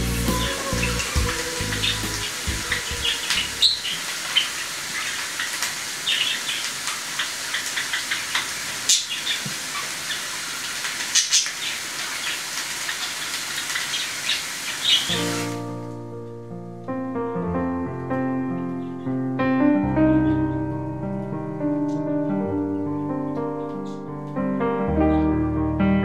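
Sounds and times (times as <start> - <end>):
steady hiss: 0.0 - 16.1
small birds chirping: 0.3 - 15.1, 20.0 - 20.7, 21.8 - 24.1.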